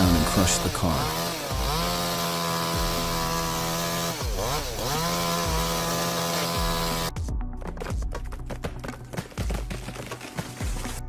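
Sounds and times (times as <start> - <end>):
chainsaw engine revving: 0.0 - 7.1.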